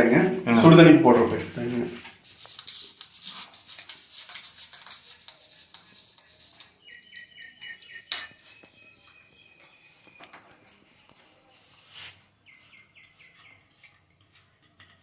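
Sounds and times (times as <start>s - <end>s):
small bird chirping: 5.4s - 10.7s, 12.4s - 14.0s.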